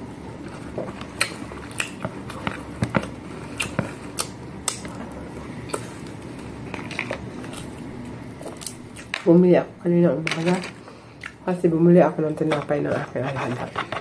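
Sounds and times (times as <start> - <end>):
person chewing crunchy food: 0.3 - 9.1.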